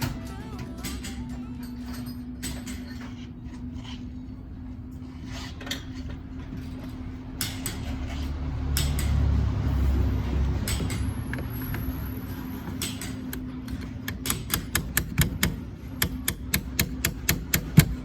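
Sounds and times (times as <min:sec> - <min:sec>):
clicks and knocks of hand work: 0:05.5 - 0:09.4, 0:12.7 - 0:18.0.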